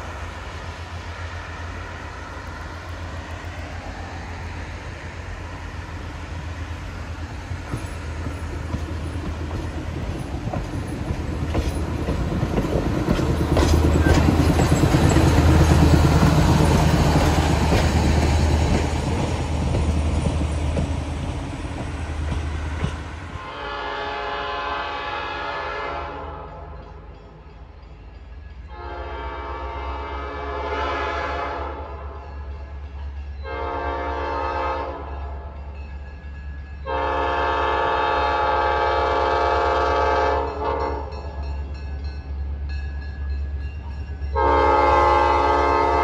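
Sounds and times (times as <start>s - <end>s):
diesel locomotive engine rumble: 0.0s - 46.0s
wheels clicking over rail joints: 7.3s - 23.2s
distant train horn: 22.7s - 26.9s, 28.6s - 32.5s, 33.4s - 35.6s, 36.8s - 41.7s, 44.2s - 46.0s.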